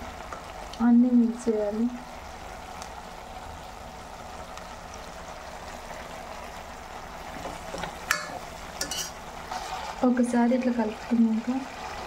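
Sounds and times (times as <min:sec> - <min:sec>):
chicken sizzling in oil: 0:00.0 - 0:12.0
metal spatula scraping pot: 0:08.1 - 0:10.2.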